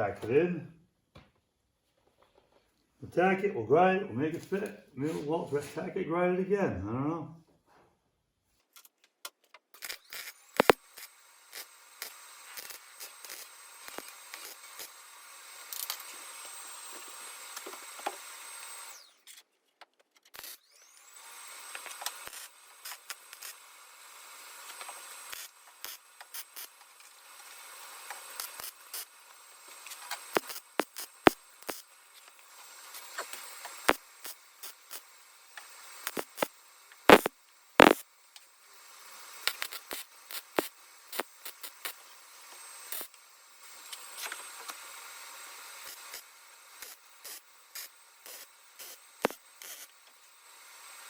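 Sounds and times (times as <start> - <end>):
power grinder whining on metal: 9.8 - 19.4, 20.3 - 38.0, 38.7 - 51.0
scraping clicks: 29.8 - 35.0, 36.0 - 36.5, 37.1 - 38.0, 39.5 - 42.0.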